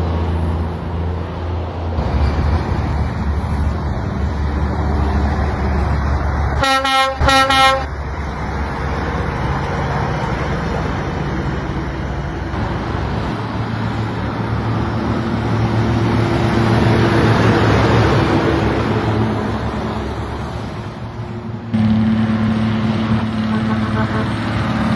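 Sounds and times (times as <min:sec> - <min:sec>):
road noise: 0:00.0 - 0:24.9
vehicle horn blasts: 0:06.6 - 0:07.9, 0:23.4 - 0:24.5
vehicle engine running: 0:21.6 - 0:24.9.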